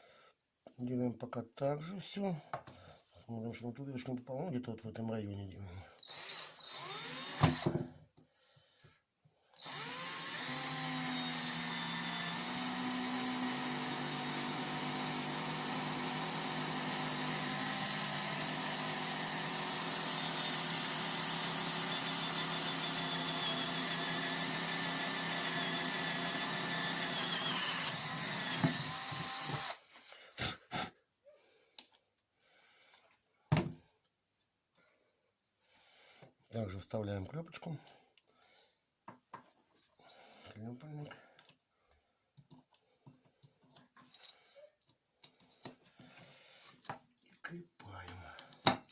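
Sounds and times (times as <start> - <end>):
electric drill whining: 6.0 - 7.8, 9.6 - 29.8.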